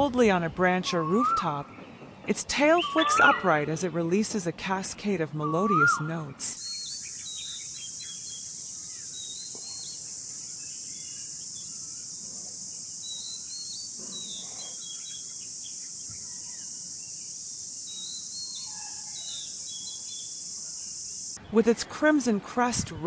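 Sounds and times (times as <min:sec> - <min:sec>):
bird singing whistled notes: 0:00.9 - 0:01.9, 0:02.6 - 0:03.7, 0:05.3 - 0:12.1, 0:13.0 - 0:20.6
high-pitched insect drone: 0:06.6 - 0:21.4.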